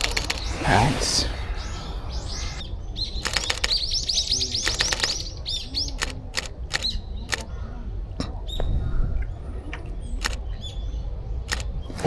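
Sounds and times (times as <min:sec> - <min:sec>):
camera shutter clicks: 0:00.0 - 0:00.5, 0:03.2 - 0:03.8, 0:04.6 - 0:05.2, 0:06.0 - 0:07.4
songbird chirping: 0:00.0 - 0:12.0.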